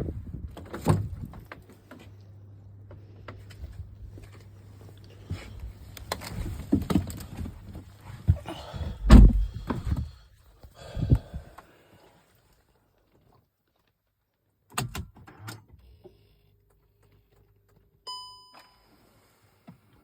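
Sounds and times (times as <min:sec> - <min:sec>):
knocks and thumps: 0:08.3 - 0:10.2.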